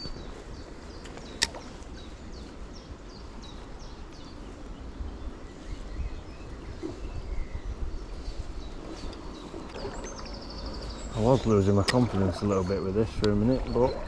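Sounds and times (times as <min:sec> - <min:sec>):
low uneven rumble: 0:00.0 - 0:14.0
sharp click: 0:01.4 - 0:01.6.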